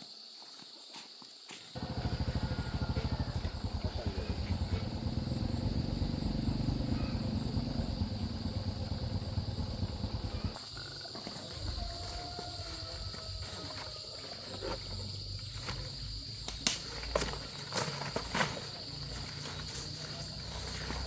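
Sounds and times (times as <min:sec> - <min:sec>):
small motorcycle engine running: 0:01.8 - 0:10.6.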